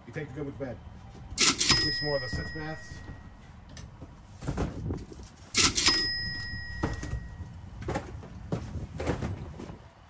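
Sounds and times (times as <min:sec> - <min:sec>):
cash register ka-ching: 0:01.4 - 0:03.4, 0:05.6 - 0:07.5
cardboard boxes knocking and scuffing: 0:04.0 - 0:05.2, 0:06.6 - 0:09.8.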